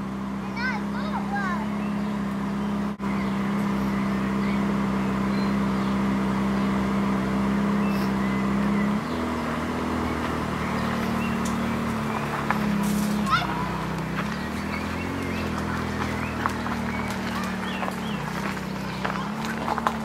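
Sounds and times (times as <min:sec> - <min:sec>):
car engine idling: 0:00.0 - 0:20.0
faint birds chirping: 0:00.1 - 0:20.0.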